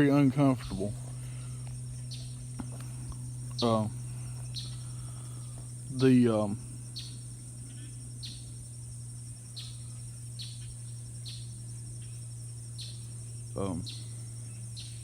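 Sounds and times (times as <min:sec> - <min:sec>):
insects buzzing: 0:00.0 - 0:15.0
steady low hum: 0:00.0 - 0:15.0.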